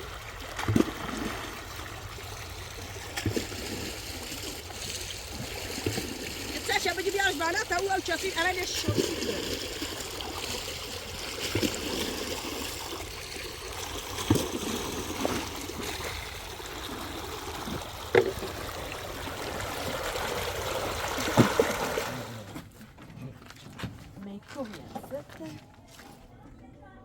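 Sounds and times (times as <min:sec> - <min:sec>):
spring water trickling: 0:00.0 - 0:22.6.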